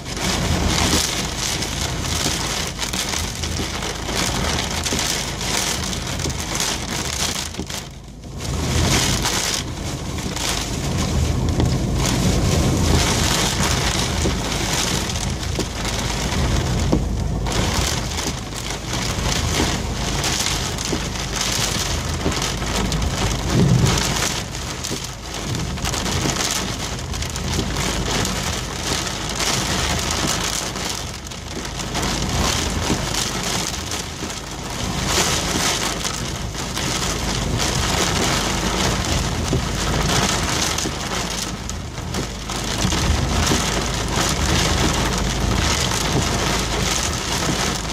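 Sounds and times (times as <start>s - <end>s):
heavy rain pouring: 0.0s - 47.9s
low thunder rumble: 21.8s - 24.9s.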